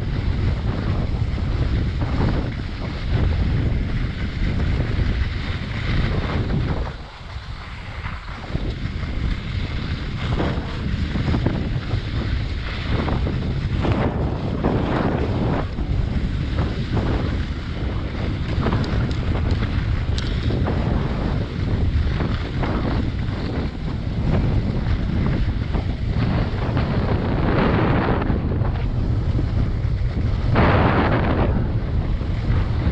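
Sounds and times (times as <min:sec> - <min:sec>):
skis scraping snow: 0:00.0 - 0:32.9
wind rushing over microphone: 0:00.0 - 0:32.9.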